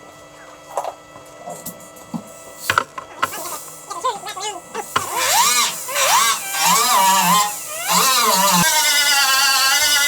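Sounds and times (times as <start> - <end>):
handheld grinder whining on metal: 4.8 - 10.0.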